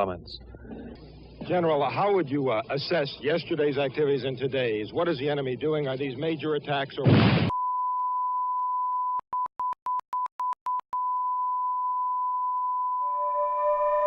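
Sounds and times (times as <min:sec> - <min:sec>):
short beeps: 0:07.5 - 0:13.4
rising siren-like wail: 0:13.1 - 0:14.0.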